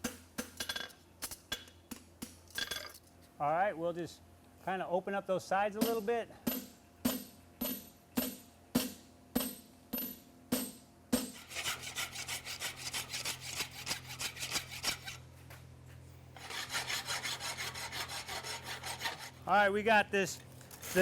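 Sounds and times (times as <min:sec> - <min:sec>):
scraping on steel shoe: 0:11.2 - 0:19.4, 0:20.7 - 0:21.0.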